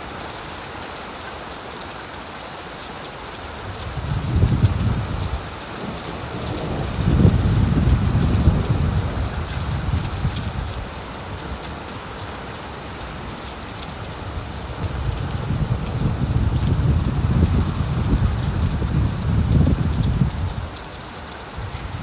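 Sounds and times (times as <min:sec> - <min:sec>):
heavy rain on a tin roof: 0:00.0 - 0:22.0
thunder rumbling: 0:04.0 - 0:10.8, 0:14.2 - 0:20.7.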